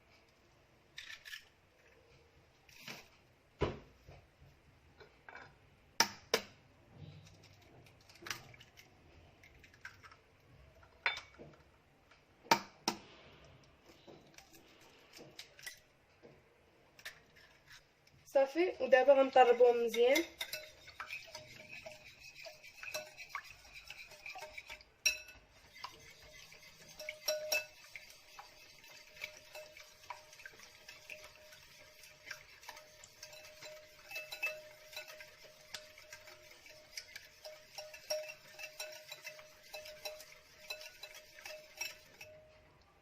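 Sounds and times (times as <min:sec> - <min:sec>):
whisk clicking against bowl: 0:19.8 - 0:42.4.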